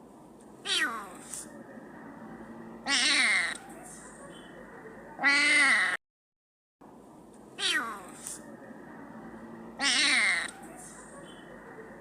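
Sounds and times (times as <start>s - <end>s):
cat meowing: 0.6s - 1.1s, 2.8s - 3.6s, 7.6s - 8.2s, 9.8s - 10.6s.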